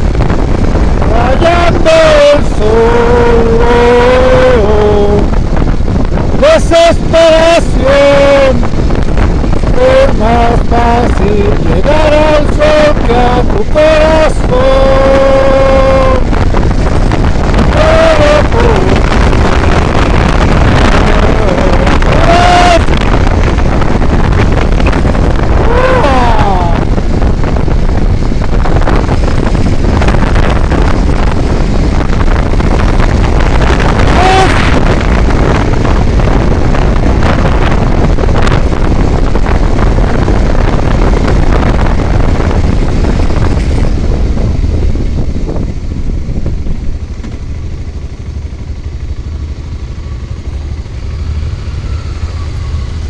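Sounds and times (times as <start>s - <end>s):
vehicle engine and road noise: 0.0s - 53.0s
wind rush on microphone: 0.0s - 53.0s.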